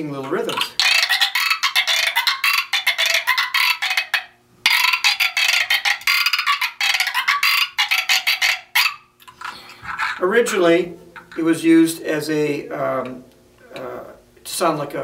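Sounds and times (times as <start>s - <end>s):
friction drum rasping croaks: 0.2s - 10.2s.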